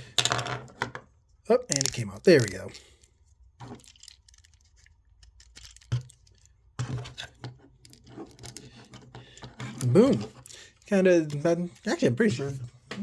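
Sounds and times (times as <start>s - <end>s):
plastic toy clicks and scrapes: 1.7s - 3.0s, 3.6s - 12.6s.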